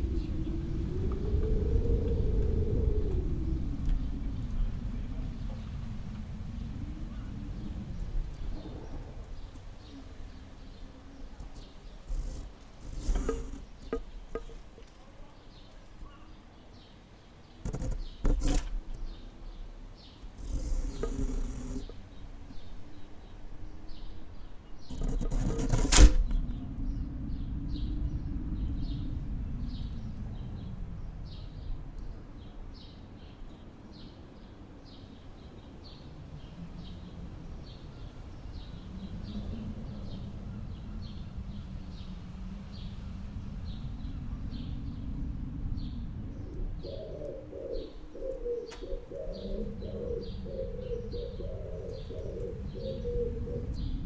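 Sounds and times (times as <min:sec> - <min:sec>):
wind gusting: 0:00.0 - 0:54.0.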